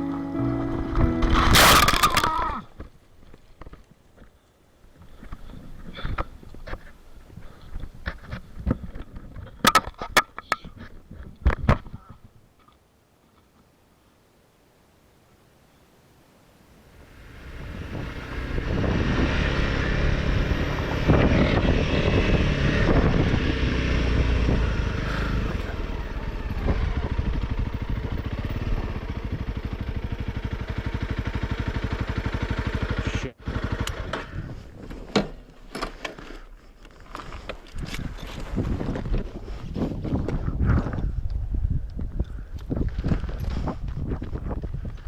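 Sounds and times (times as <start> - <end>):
motorcycle engine running: 17.0 - 35.2.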